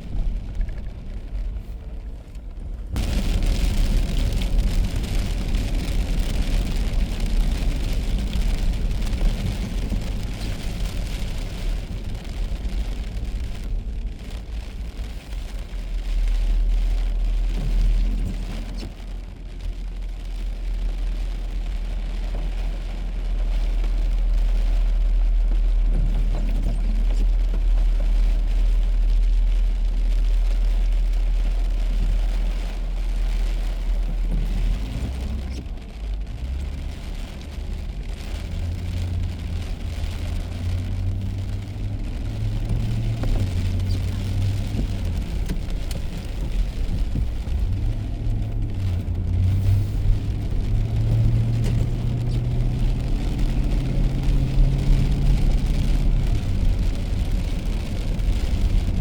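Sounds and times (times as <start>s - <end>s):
car driving on wet road: 0.0s - 59.0s.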